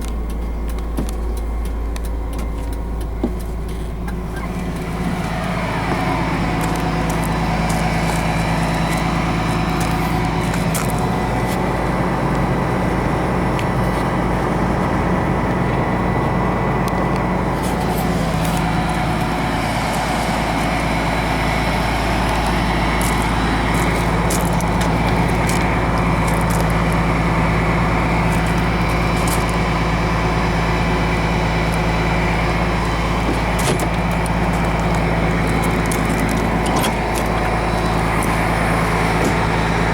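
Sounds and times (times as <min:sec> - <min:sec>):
diesel coach engine running: 0:00.0 - 0:39.9
road noise: 0:00.0 - 0:39.9.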